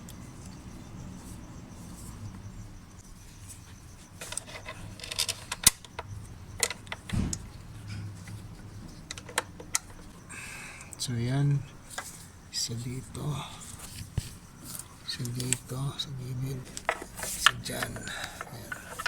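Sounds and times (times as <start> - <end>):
dull thump: 7.1 - 7.6
metal tools clinking: 14.7 - 19.0.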